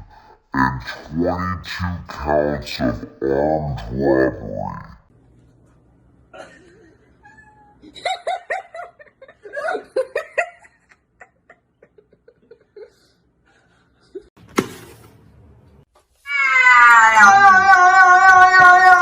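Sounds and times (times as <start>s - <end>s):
person laughing: 6.4s - 14.3s.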